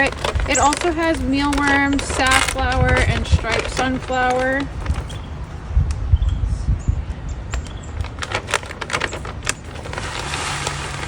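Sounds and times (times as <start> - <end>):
bird feeder bumps: 0.0 - 5.5, 7.5 - 11.0
clicks and rattles: 0.0 - 5.6, 7.5 - 11.0
seed pouring into feeder: 8.1 - 11.0.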